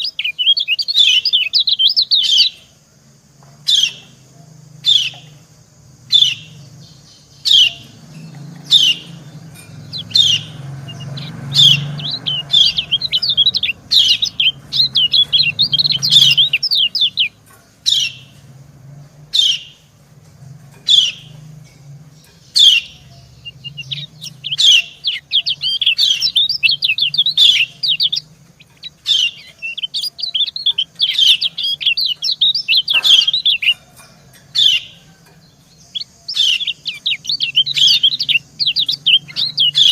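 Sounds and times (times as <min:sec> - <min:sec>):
bird fast twittering song: 0:00.0 - 0:39.9
bird sharp falling calls: 0:06.1 - 0:18.4, 0:22.3 - 0:39.9.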